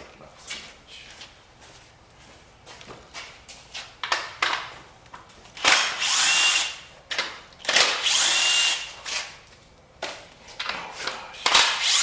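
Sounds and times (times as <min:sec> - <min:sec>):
impact driver spinning a bolt: 0:07.6 - 0:09.3, 0:11.4 - 0:12.0.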